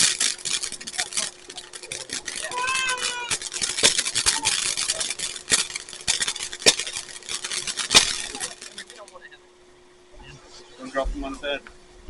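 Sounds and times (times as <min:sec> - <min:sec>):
fireworks crackling: 0:00.0 - 0:09.3.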